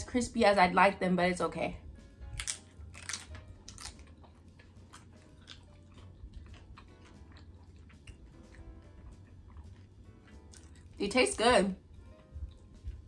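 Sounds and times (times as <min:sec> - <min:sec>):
person chewing tortilla chips: 0:02.2 - 0:11.0, 0:11.8 - 0:13.0.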